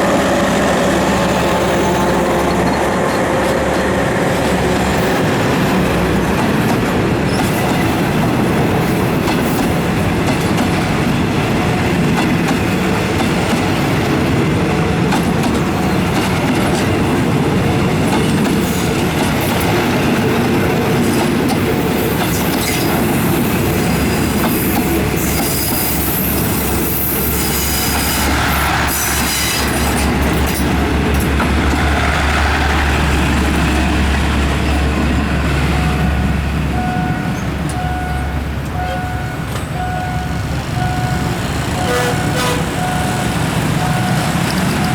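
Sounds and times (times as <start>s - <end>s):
train wheels clacking over rail joints: 0.0s - 35.7s.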